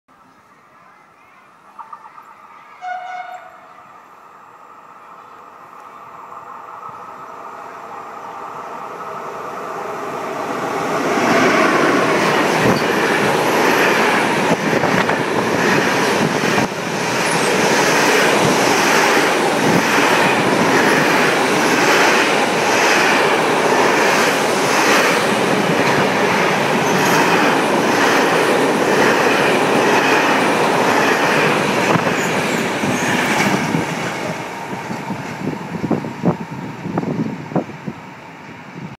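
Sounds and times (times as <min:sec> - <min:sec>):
wheels rushing on rail: 0:01.7 - 0:38.9
train horn: 0:02.7 - 0:04.1.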